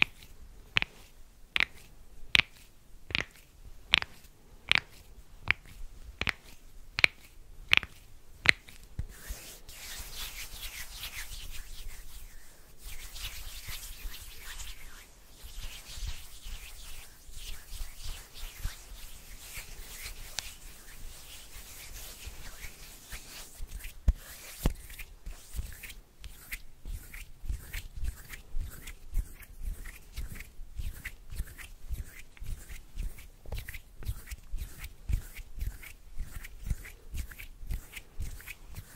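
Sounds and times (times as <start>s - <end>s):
light hand taps: 0.0s - 9.2s
hands rubbing together: 0.0s - 38.9s.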